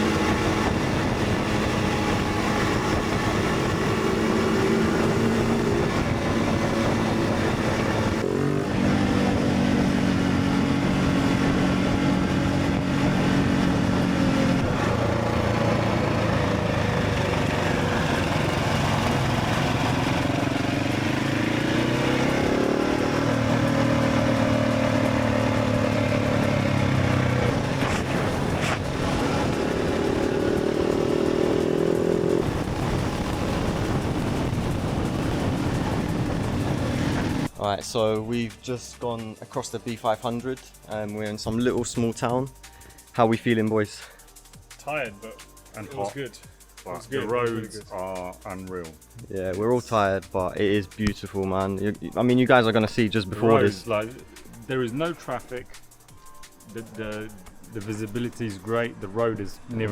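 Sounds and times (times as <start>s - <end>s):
wind noise: 0.0s - 16.6s, 25.2s - 37.5s
motorcycle engine revving: 0.0s - 37.6s, 45.6s - 59.9s.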